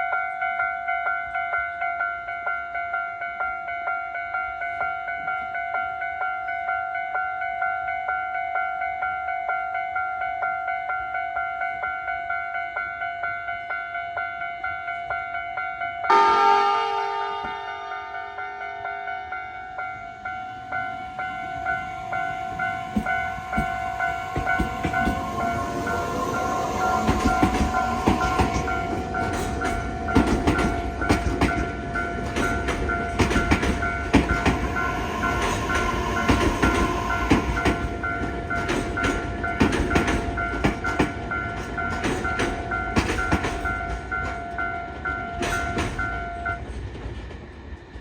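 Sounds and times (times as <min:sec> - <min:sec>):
steady high tones: 0:16.1 - 0:39.6
wheels clicking over rail joints: 0:26.5 - 0:47.5.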